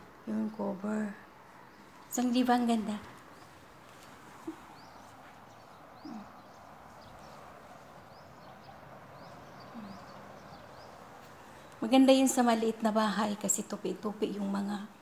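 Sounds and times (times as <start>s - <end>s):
soft background hiss: 0.0s - 15.0s
faint bird chirps: 4.3s - 11.8s.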